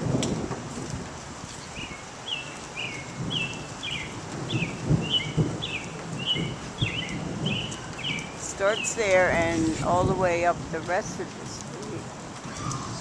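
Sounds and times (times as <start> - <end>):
low gusty rumble: 3.0 - 13.0.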